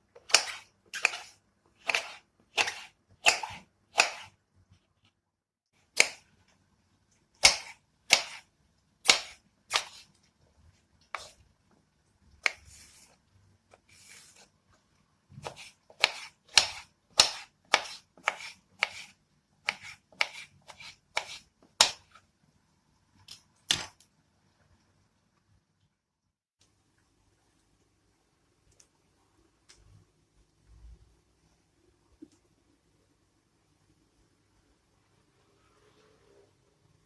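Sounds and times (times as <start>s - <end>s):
knife chopping on cutting board: 0.2s - 4.4s, 7.4s - 10.1s, 15.4s - 22.2s.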